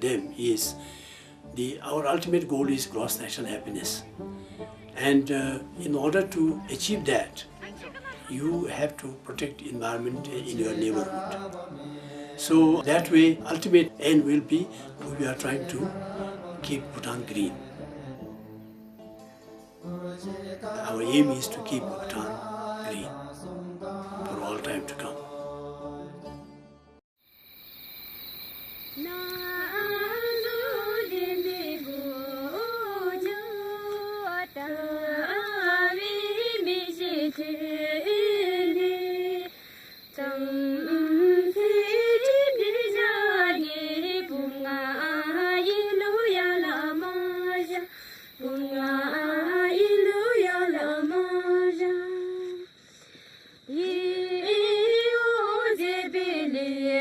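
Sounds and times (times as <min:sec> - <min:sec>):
woman singing unaccompanied: 0:05.0 - 0:18.3, 0:29.0 - 0:52.8, 0:53.7 - 0:57.0.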